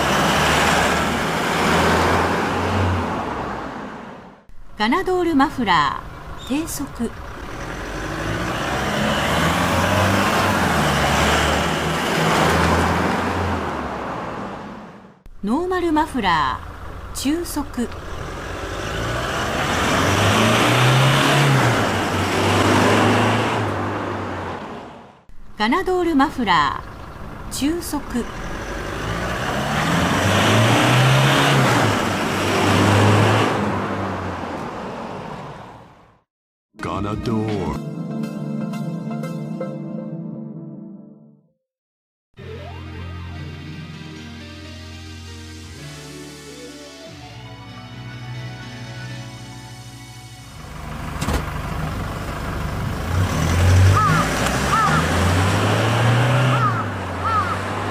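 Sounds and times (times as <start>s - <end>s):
tyre and road noise: 0.0s - 4.8s, 5.6s - 15.3s, 16.0s - 36.2s, 50.4s - 57.9s.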